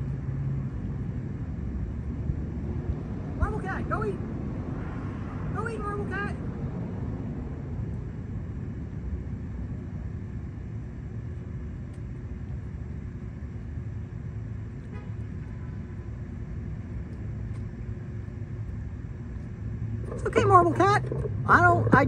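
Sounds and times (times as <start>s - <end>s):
faint steady hum: 0.0s - 22.0s
low rumble of road traffic: 0.0s - 22.0s
light ticks: 11.9s - 12.1s.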